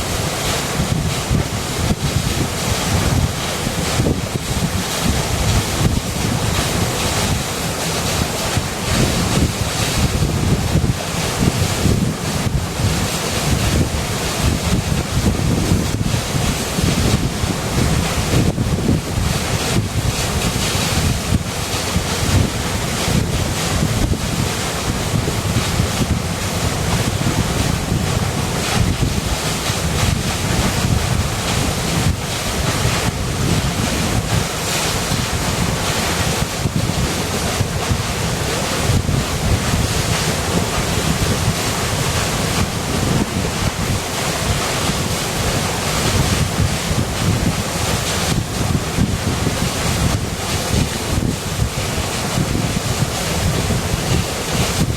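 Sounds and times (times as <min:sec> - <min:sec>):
river water rushing: 0:00.0 - 0:54.9.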